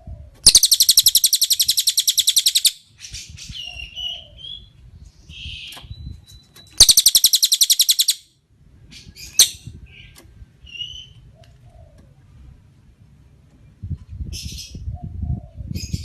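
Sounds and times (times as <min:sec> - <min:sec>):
bird rattling trill: 0:00.4 - 0:02.8, 0:06.2 - 0:08.2, 0:09.3 - 0:09.6
sharp bird call: 0:00.4 - 0:02.8, 0:06.8 - 0:08.2
soft short bird whistles: 0:05.9 - 0:08.2.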